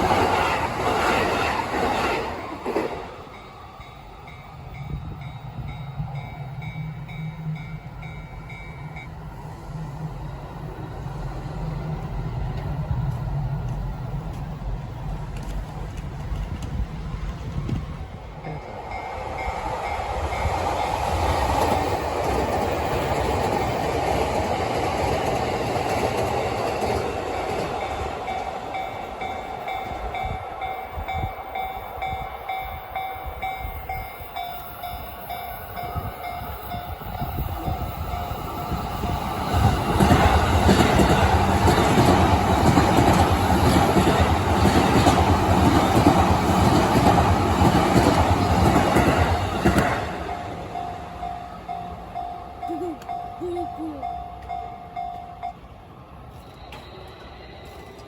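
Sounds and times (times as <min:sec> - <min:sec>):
crossing warning bell: 0:03.0 - 0:09.8, 0:18.2 - 0:23.8, 0:26.8 - 0:58.0
train wheels clattering: 0:33.0 - 0:51.4.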